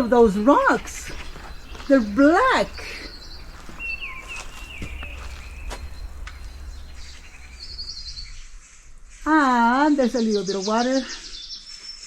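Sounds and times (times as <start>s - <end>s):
bird trill: 0.0s - 8.6s
low rumble: 0.0s - 8.6s
birds chirping: 0.0s - 11.6s.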